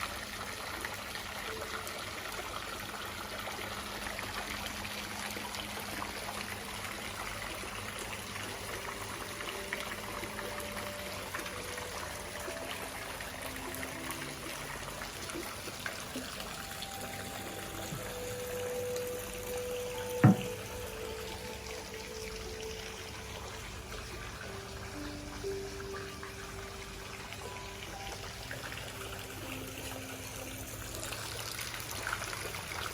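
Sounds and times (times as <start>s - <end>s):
water trickling and splashing: 0.0s - 32.9s
soft held notes: 16.1s - 31.2s.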